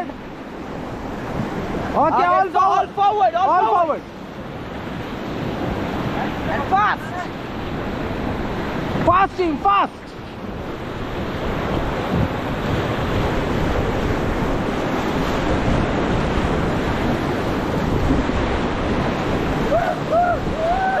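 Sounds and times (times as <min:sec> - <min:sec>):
wind buffeting microphone: 0:00.0 - 0:09.3, 0:10.1 - 0:21.0
whitewater rushing and crashing: 0:00.0 - 0:21.0
people shouting: 0:19.6 - 0:21.0.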